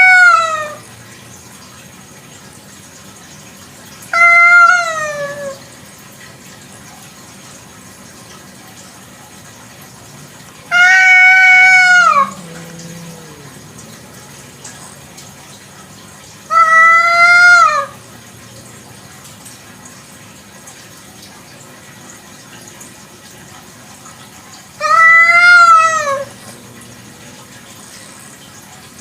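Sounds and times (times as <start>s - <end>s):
cat meowing: 0.0s - 0.8s, 4.1s - 5.7s, 10.7s - 14.5s, 16.5s - 18.0s, 24.8s - 27.0s.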